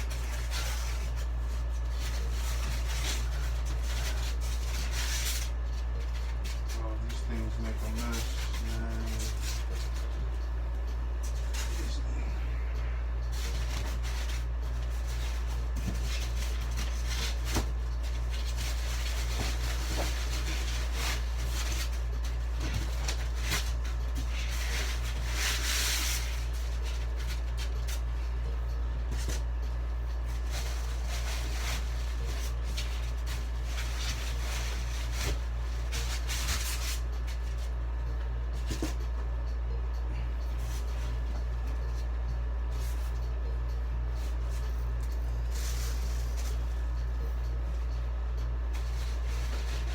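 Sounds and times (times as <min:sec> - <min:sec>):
steady low hum: 0:00.0 - 0:49.9
packing material rustling: 0:13.3 - 0:28.0.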